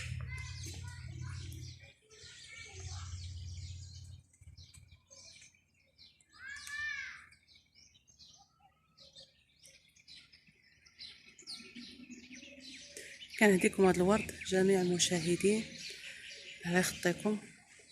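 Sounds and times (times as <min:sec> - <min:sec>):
small birds chirping: 0:00.0 - 0:17.9.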